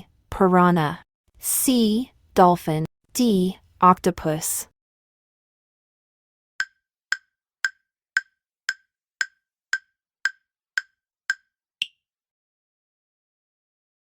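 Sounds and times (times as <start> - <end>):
countdown timer ticks: 6.6 - 12.0.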